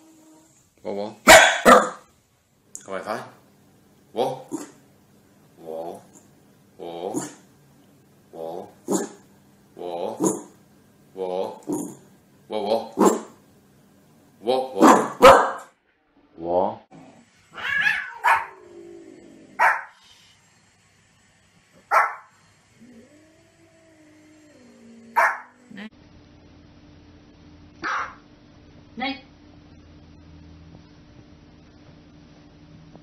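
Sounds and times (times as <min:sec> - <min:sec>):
small dogs barking: 0:01.3 - 0:02.1, 0:08.9 - 0:09.2, 0:13.0 - 0:13.4, 0:14.8 - 0:15.7, 0:17.5 - 0:18.6, 0:19.6 - 0:20.0, 0:21.8 - 0:22.3, 0:25.1 - 0:25.6, 0:27.8 - 0:28.2
dog wavering cry: 0:17.5 - 0:18.6.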